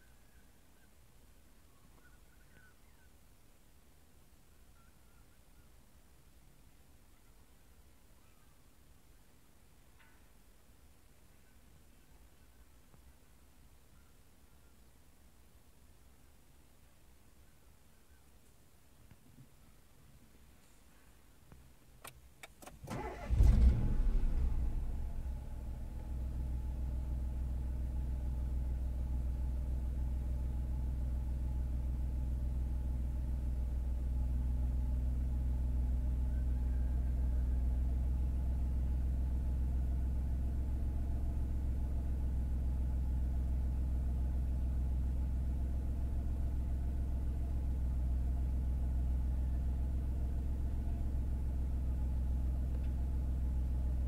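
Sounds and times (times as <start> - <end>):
car engine starting and idling: 22.0 - 54.0.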